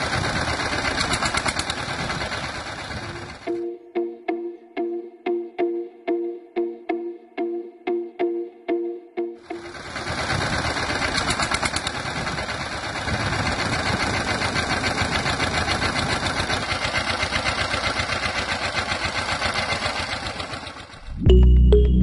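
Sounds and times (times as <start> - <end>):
toy tractor engine chugging: 0.0 - 3.6, 9.4 - 21.1.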